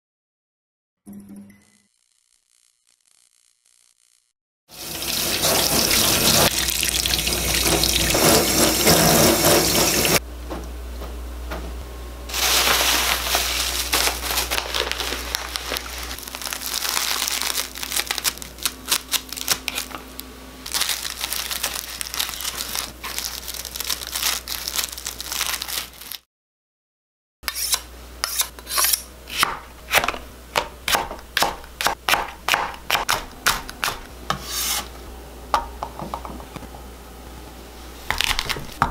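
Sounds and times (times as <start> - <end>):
tap water running into sink: 4.8 - 10.2
knife chopping on cutting board: 27.5 - 34.9.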